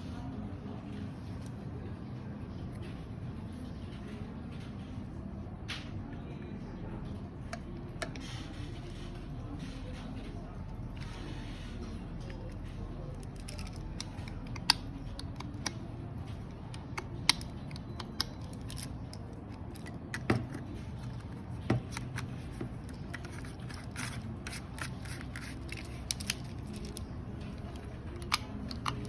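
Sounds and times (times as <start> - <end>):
hard plastic parts clicking: 27.6 - 29.0.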